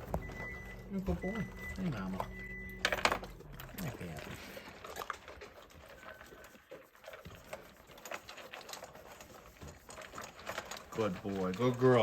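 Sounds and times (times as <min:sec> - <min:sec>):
dogs crunching food: 0:00.0 - 0:12.0.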